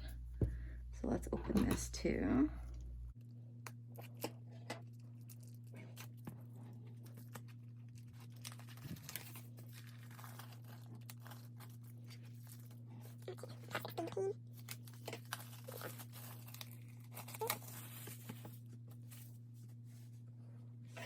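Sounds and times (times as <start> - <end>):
steady low hum: 0.0 - 17.1
plastic wrap crinkling and tearing: 7.0 - 19.2.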